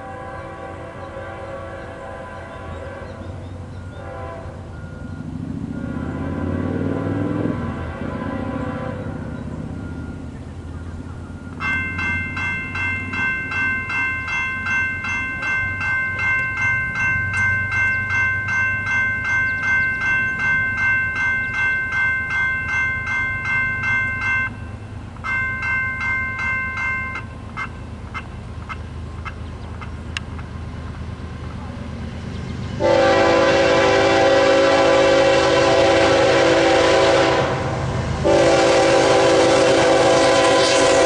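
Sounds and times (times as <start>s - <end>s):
crossing bell ringing: 3.4s - 29.5s.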